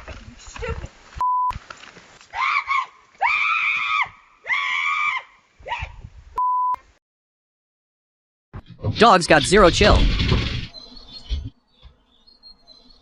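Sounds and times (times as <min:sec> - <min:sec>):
censor bleep: 0:06.4 - 0:06.8.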